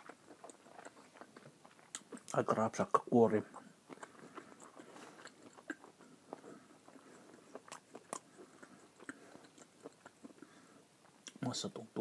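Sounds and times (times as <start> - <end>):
wet mouth clicks: 0.0 - 2.4, 3.5 - 10.5
person chewing sausage: 0.0 - 11.4.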